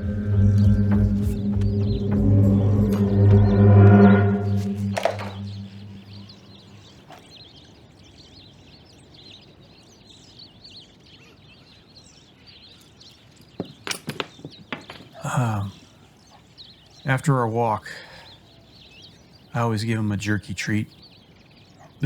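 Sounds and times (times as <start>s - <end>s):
low musical drone: 0.0s - 6.6s
birds chirping: 0.0s - 6.9s, 12.5s - 22.0s.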